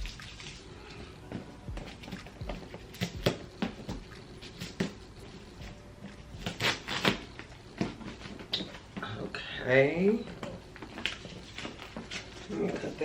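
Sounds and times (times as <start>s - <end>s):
packaging crinkling and rustling: 10.6s - 13.0s.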